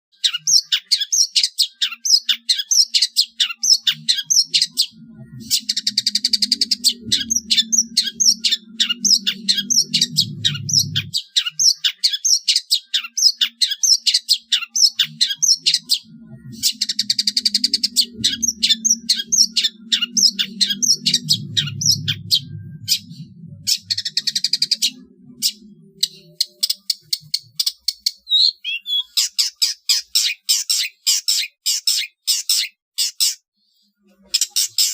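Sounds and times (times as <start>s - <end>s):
bird chattering song: 0.1s - 33.4s, 34.2s - 34.9s
low hum: 3.7s - 11.2s, 14.8s - 27.5s.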